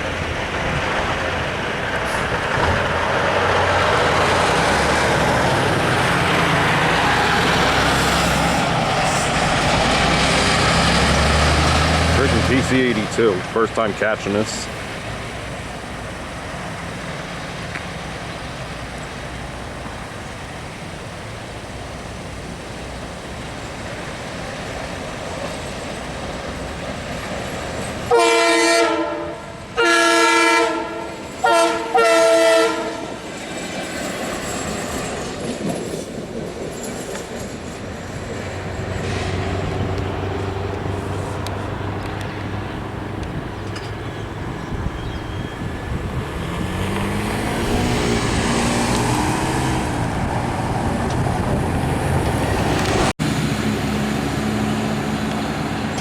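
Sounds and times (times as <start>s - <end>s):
low diesel engine hum: 0.0s - 28.6s, 37.9s - 56.0s
wheels clacking over rail joints: 0.0s - 29.8s, 30.7s - 53.1s
rumble of approaching train: 0.0s - 56.0s
multi-tone train horn: 28.1s - 33.2s.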